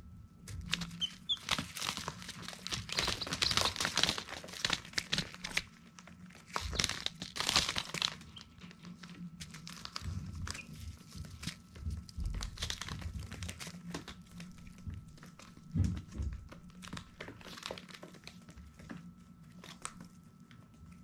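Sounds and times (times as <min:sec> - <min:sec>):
chicks scratching on bedding: 0:00.4 - 0:18.8.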